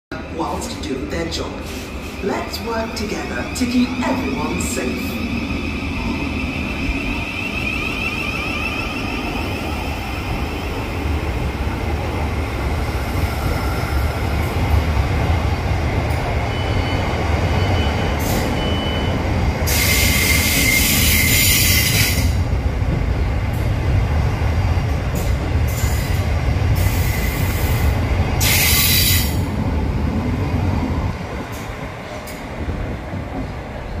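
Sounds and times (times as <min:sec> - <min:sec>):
train wheels rumbling on rail: 0:00.1 - 0:34.0
hissing squeal of train: 0:03.6 - 0:10.3, 0:16.5 - 0:22.4, 0:25.2 - 0:29.5.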